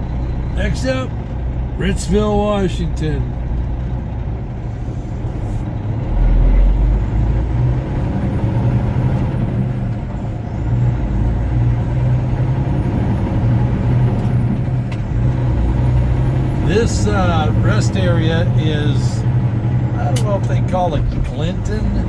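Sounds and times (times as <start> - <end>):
road noise: 0.0 - 22.0
truck engine droning: 0.0 - 22.0
heavy low rumble: 9.3 - 22.0.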